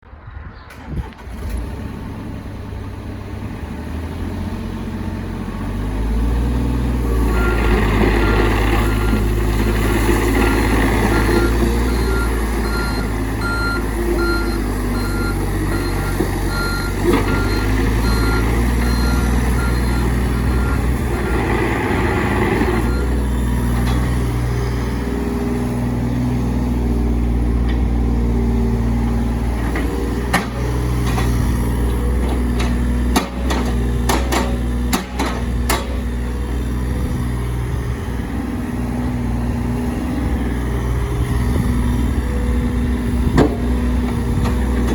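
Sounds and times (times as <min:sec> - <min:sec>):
excavator diesel engine running: 0:00.7 - 0:44.9.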